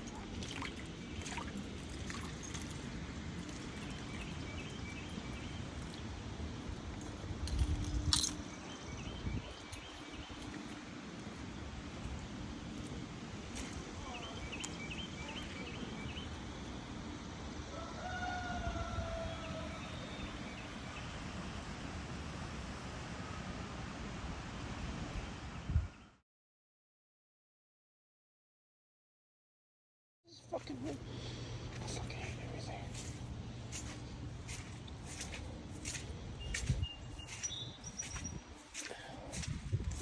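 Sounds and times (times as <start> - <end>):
high chirping calls: 30.4 - 40.0.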